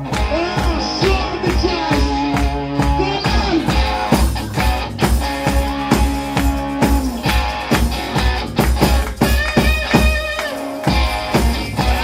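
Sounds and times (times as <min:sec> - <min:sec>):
guitar: 0:00.0 - 0:12.0
steady drum beat: 0:00.0 - 0:12.0.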